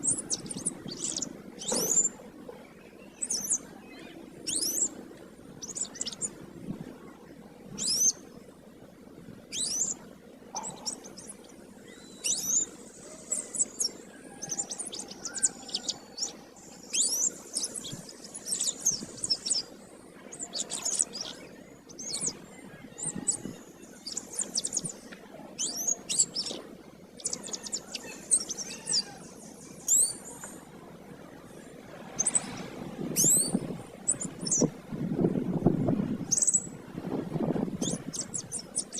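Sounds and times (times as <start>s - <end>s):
canary singing: 0.0s - 2.2s, 3.1s - 4.9s, 5.6s - 6.3s, 7.8s - 8.2s, 9.5s - 10.0s, 10.6s - 26.6s, 27.2s - 30.6s, 33.2s - 34.7s, 36.3s - 36.7s, 37.8s - 38.9s.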